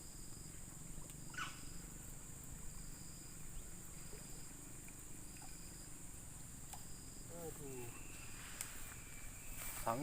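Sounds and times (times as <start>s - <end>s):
high-pitched insect chorus: 0.0s - 10.0s.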